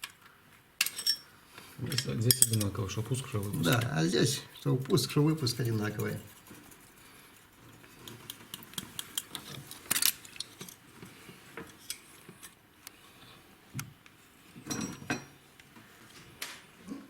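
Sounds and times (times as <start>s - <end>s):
metal tools clinking on engine: 0.8s - 1.3s, 1.9s - 3.9s.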